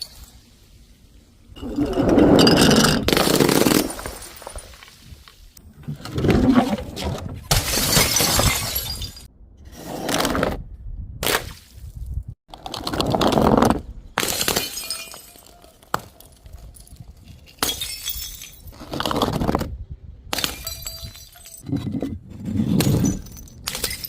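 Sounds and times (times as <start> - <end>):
glass bottles smashing: 1.6 - 5.1, 7.5 - 9.3, 14.2 - 15.6, 16.3 - 18.8, 20.3 - 21.6, 22.8 - 24.0
glass shards scattering: 2.4 - 5.1, 7.5 - 9.3, 14.2 - 15.7, 16.3 - 18.8, 20.3 - 21.6, 22.8 - 24.0.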